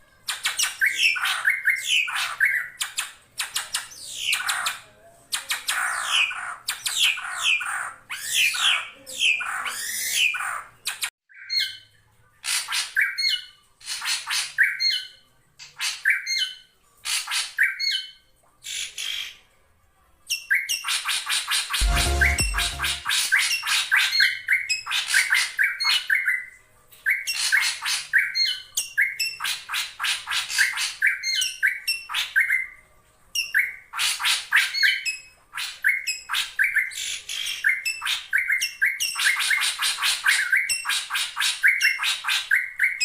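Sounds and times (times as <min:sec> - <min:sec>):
bird squawks and chatter: 0:00.1 - 0:19.6, 0:20.2 - 0:32.8, 0:33.4 - 0:43.0
sharp repeated bird calls: 0:21.8 - 0:23.5.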